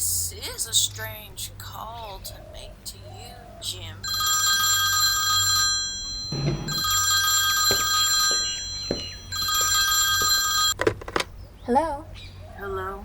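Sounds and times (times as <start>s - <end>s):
telephone ringing: 4.0s - 10.8s
steady low hum: 5.7s - 13.0s
low thud: 6.4s - 7.0s.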